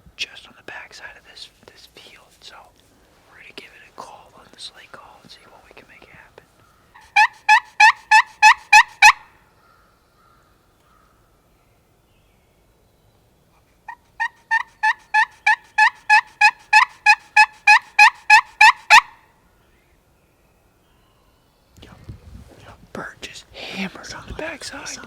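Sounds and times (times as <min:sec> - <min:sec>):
turkey call yelps: 0:07.0 - 0:09.3, 0:13.9 - 0:19.2.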